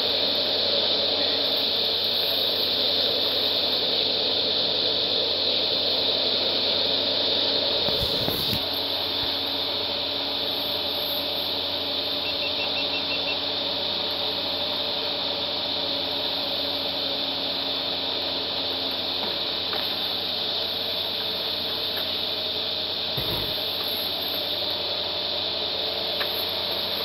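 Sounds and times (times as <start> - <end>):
car engine running at low revs: 18.6 - 24.7.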